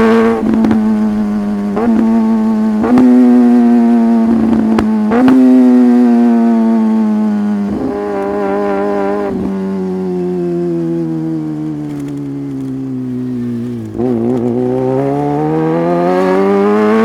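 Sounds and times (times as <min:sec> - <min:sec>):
quick gear changes: 0:00.0 - 0:05.6, 0:11.0 - 0:16.3
motorcycle engine: 0:00.0 - 0:17.0.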